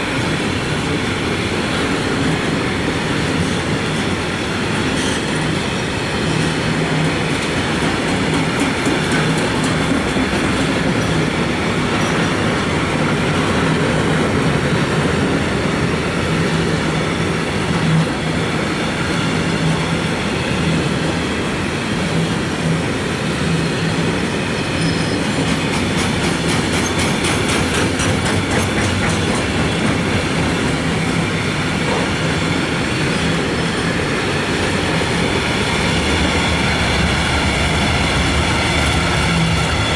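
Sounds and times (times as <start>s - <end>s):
freight train wagons rolling past: 0.0s - 39.9s
wheels clacking over rail joints: 0.0s - 39.9s.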